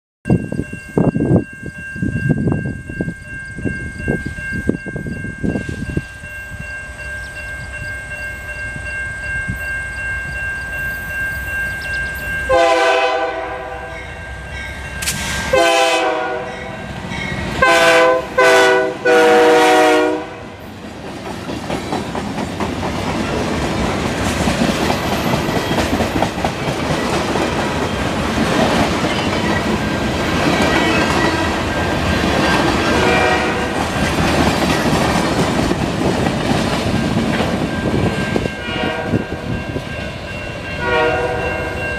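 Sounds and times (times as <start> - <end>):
steady high ringing tone: 0.3 - 12.7
train wheel noise: 0.3 - 41.9
locomotive horn blasts: 12.5 - 14.3, 15.4 - 17.0, 17.6 - 20.6, 32.9 - 33.8, 38.6 - 39.4, 40.8 - 41.9.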